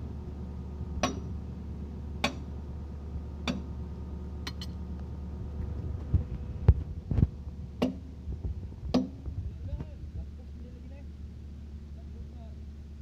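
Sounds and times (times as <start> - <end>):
hammer striking metal: 1.0 - 1.3.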